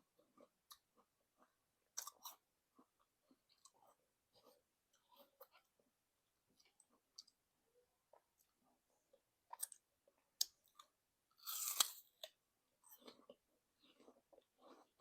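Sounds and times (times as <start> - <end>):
chewing: 8.1 - 15.0
apple crunching: 11.4 - 12.4.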